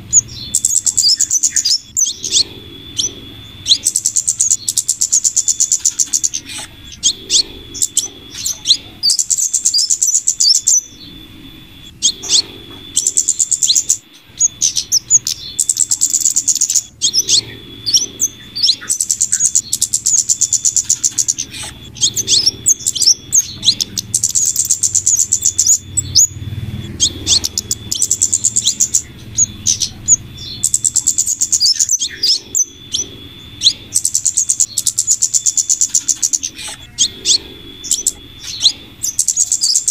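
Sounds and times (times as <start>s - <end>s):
high ticking bird trills: 0.0s - 39.9s
sharp bird chirps: 0.0s - 39.9s
thin steady high tone: 0.0s - 39.9s.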